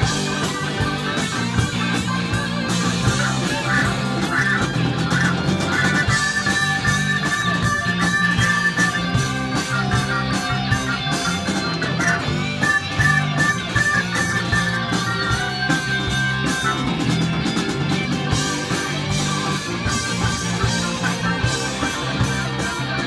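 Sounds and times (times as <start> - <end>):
bass guitar: 0.0 - 23.0
drums: 0.0 - 23.0
electric guitar bending notes: 0.0 - 23.0.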